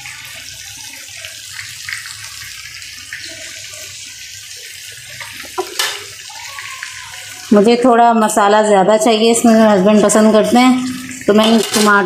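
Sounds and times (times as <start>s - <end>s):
food sizzling in a frying pan: 0.0s - 12.0s
oil popping: 4.5s - 7.6s.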